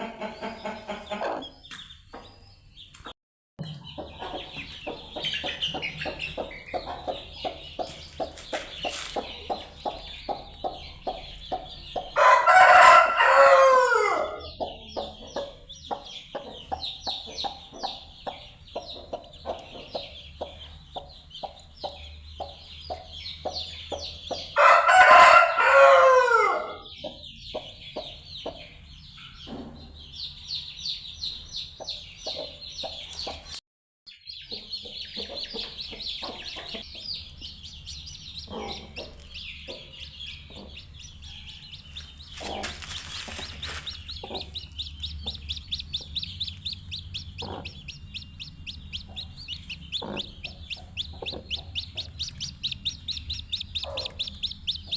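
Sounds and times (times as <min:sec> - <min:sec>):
chickens clucking: 0:00.0 - 0:30.1, 0:31.3 - 0:33.6, 0:34.3 - 0:54.9
chicks peeping: 0:00.0 - 0:54.9
rooster crowing: 0:12.2 - 0:14.5, 0:24.6 - 0:26.8
rustling: 0:42.3 - 0:44.1.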